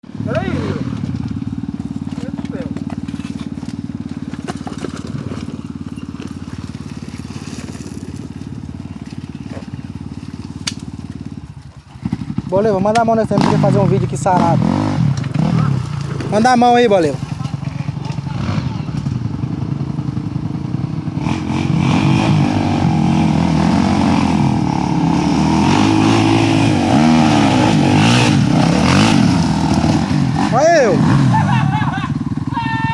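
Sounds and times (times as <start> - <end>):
motorcycle engine idling: 0.0 - 22.0, 22.6 - 32.9.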